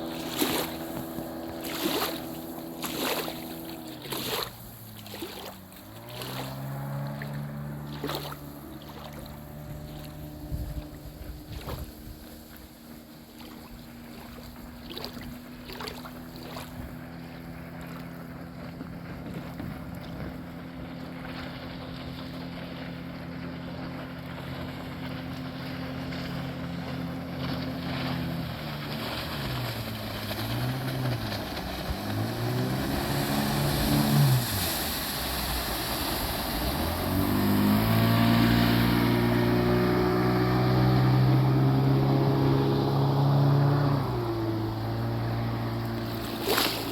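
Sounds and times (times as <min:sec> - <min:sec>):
engine revving: 0:00.0 - 0:11.8, 0:27.0 - 0:46.9.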